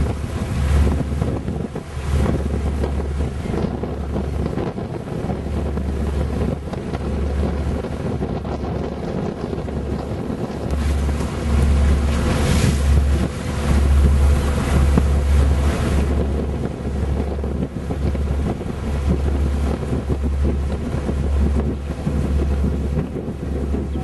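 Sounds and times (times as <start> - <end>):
water and waves rushing: 0.0 - 24.0
wind buffeting microphone: 0.0 - 24.0.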